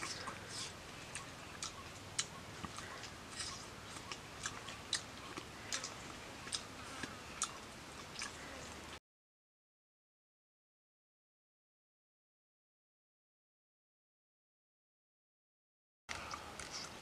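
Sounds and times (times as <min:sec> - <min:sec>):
person chewing with wet smacks: 0:00.0 - 0:08.5, 0:16.1 - 0:17.0.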